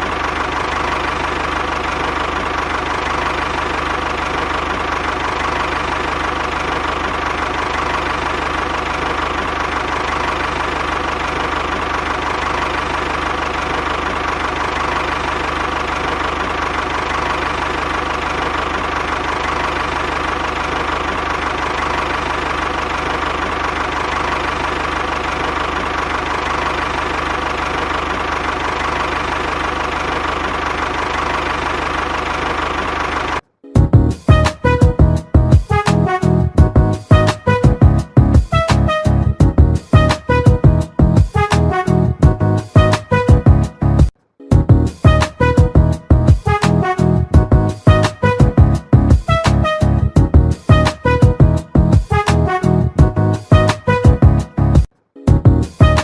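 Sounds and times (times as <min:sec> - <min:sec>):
rattle: 0:00.0 - 0:33.4.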